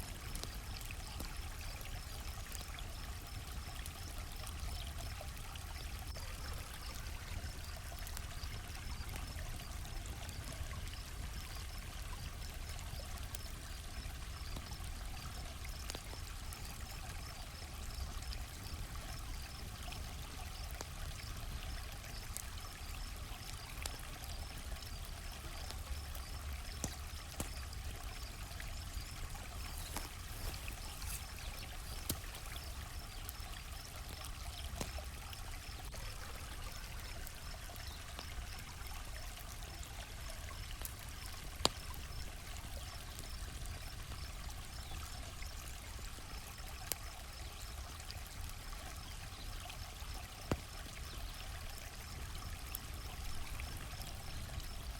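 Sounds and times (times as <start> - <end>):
campfire crackling and popping: 0.0 - 45.4, 50.2 - 54.9
crickets chirping: 20.6 - 45.6, 49.0 - 54.9.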